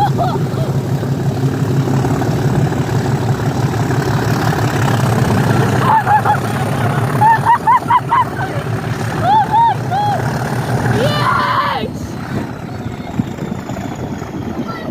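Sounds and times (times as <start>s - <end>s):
train engine rumble: 0.0s - 14.9s.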